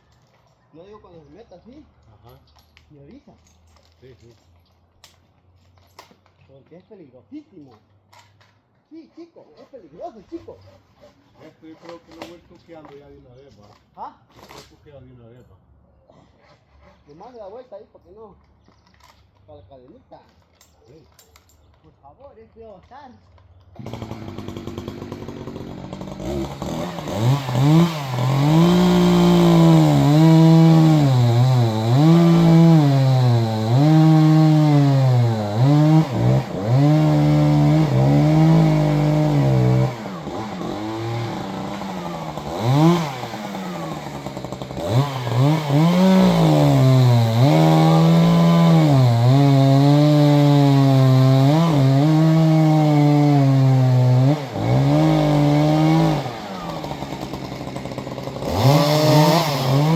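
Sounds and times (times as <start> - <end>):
chainsaw cutting wood: 9.6 - 13.1, 23.7 - 59.9.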